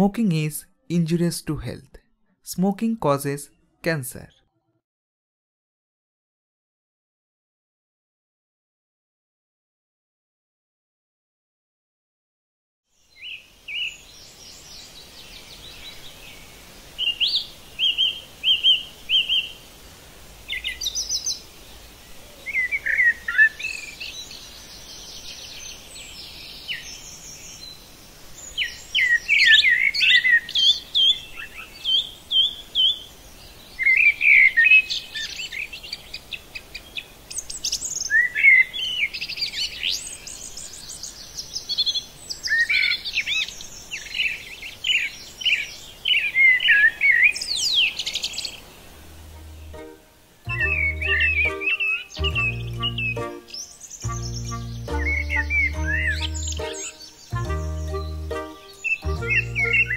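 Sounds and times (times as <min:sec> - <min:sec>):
birds singing and chirping: 0:28.4 - 0:49.8, 0:50.5 - 0:59.9.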